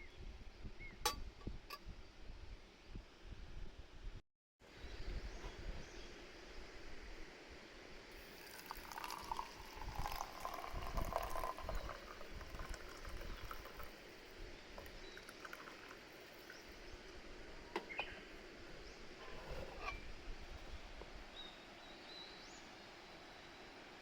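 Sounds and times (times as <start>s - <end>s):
liquid pouring into container: 8.2s - 14.1s, 14.8s - 16.7s.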